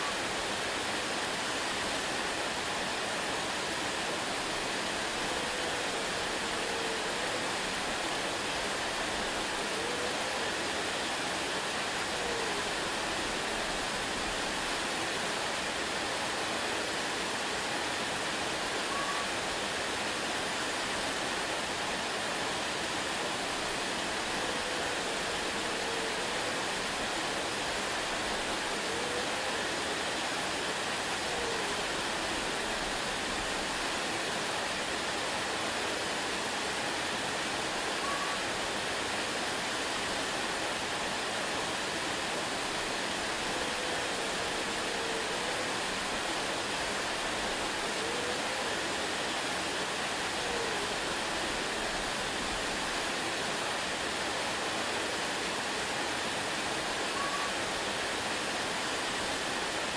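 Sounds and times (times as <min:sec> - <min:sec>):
waterfall splashing: 0:00.0 - 0:59.9
faint whistle-like tones: 0:38.0 - 0:38.5, 0:57.2 - 0:57.6.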